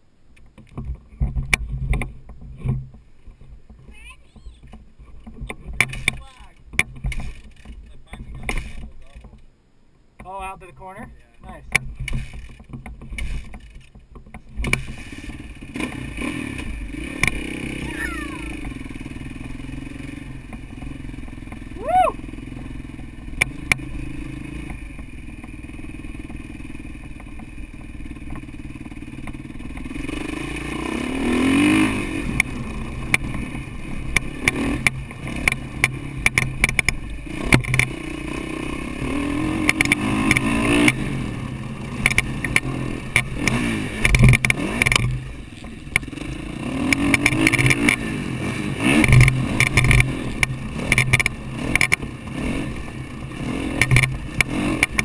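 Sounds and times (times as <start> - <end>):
knocks and rattles: 0.4 - 9.5, 11.7 - 15.7, 32.4 - 38.0, 42.0 - 46.2
dirt bike engine revving: 5.6 - 9.3, 11.6 - 13.9, 14.5 - 55.0.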